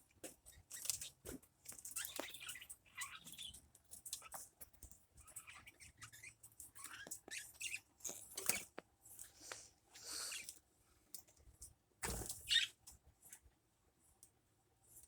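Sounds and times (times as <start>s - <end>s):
small birds chirping: 0.4s - 10.6s, 12.2s - 12.9s.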